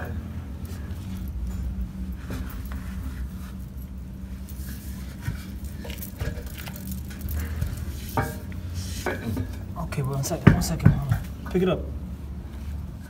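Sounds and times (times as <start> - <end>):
metal tools clinking: 0.0 - 11.3
steady low hum: 0.0 - 13.0.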